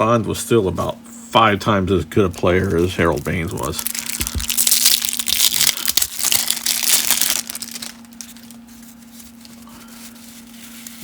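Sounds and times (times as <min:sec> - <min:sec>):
steady low hum: 0:00.0 - 0:11.0
cellophane wrapper crinkling: 0:02.5 - 0:11.0.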